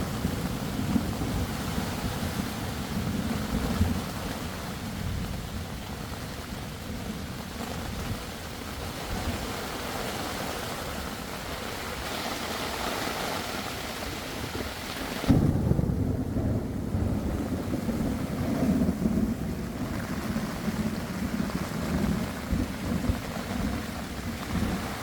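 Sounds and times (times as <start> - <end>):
heavy rain pouring: 0.0 - 25.0
deep thunder rumble: 15.3 - 25.0.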